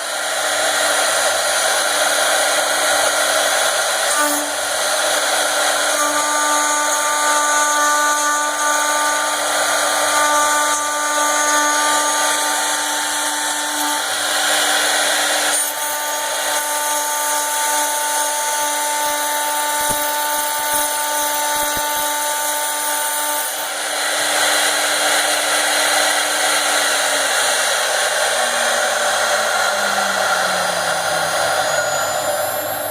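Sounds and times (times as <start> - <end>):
hiss of cutting: 0.0 - 32.9
router spindle whining: 0.0 - 32.9
higher whine: 24.3 - 32.9.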